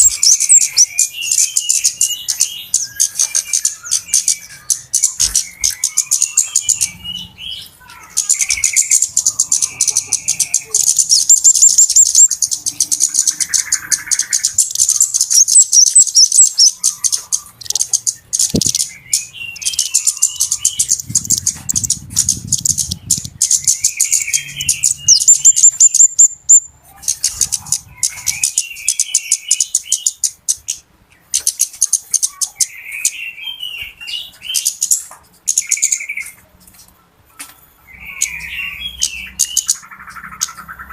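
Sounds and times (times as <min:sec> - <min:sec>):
birds ticking chatter: 0:00.0 - 0:40.9.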